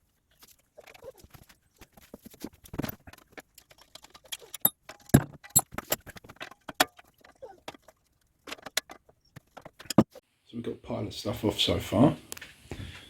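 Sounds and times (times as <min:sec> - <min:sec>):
tools and metal parts clanking: 0:02.0 - 0:10.2.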